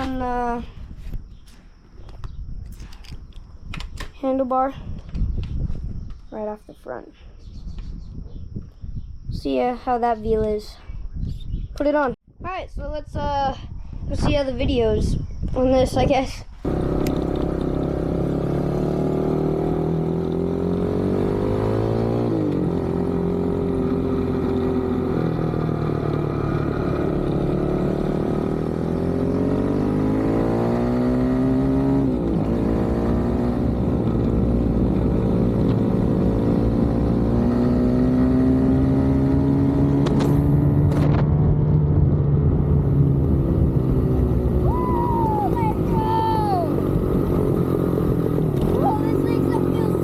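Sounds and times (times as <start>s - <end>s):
dirt bike engine accelerating: 16.6s - 50.0s.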